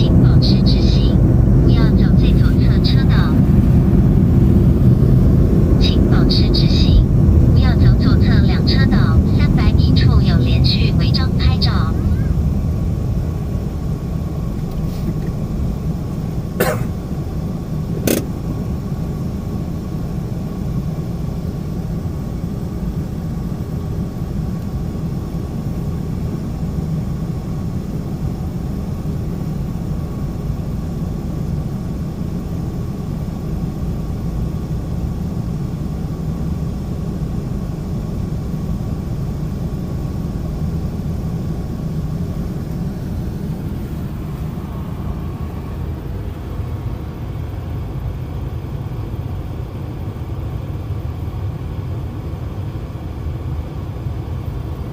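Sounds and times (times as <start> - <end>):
car cabin road rumble: 0.0 - 26.9.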